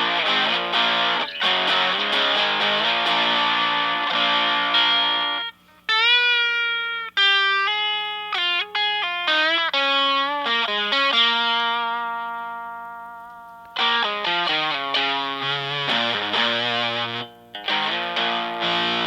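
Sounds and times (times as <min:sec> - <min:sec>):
distorted electric guitar chords: 0:00.0 - 0:19.0
electric guitar lead phrases: 0:00.0 - 0:19.0.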